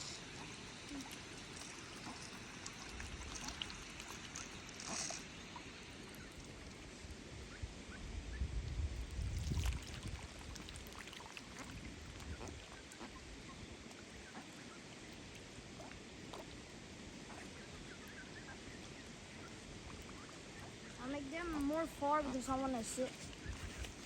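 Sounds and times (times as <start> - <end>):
water splashes: 0.0 - 7.1, 9.0 - 17.7, 19.4 - 24.0
wind rumble on microphone: 7.0 - 10.9, 11.6 - 13.8, 23.0 - 24.0.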